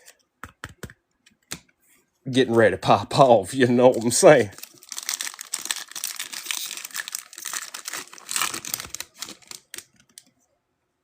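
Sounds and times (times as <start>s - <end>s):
foil wrappers tearing and crinkling: 3.9s - 10.2s.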